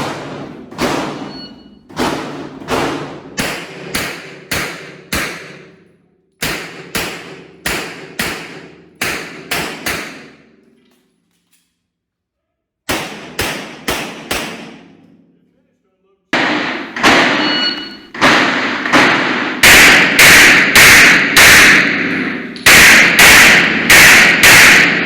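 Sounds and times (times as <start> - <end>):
pistol shots: 0.0 - 1.4, 2.0 - 5.8, 12.9 - 14.9, 16.4 - 25.0.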